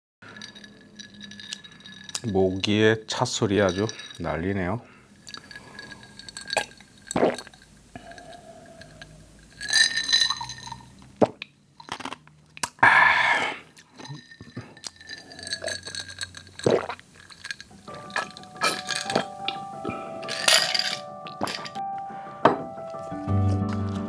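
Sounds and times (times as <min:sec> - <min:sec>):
glass clinking: 0:00.3 - 0:11.0, 0:13.9 - 0:23.0
sipping and swallowing drink: 0:03.7 - 0:20.6.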